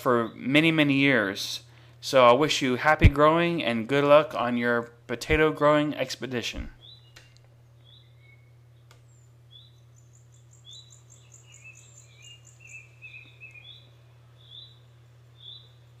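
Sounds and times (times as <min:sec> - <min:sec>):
steady low hum: 0:00.0 - 0:16.0
bird chirping: 0:06.8 - 0:16.0
bird trill: 0:06.8 - 0:16.0.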